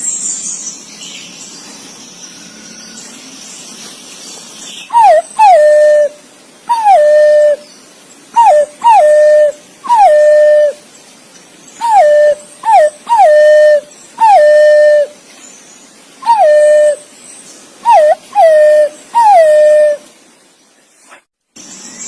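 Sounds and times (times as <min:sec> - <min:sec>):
pigeon whistled calls: 0:04.9 - 0:07.6, 0:08.4 - 0:10.8, 0:11.8 - 0:15.1, 0:16.2 - 0:17.0, 0:17.8 - 0:20.0.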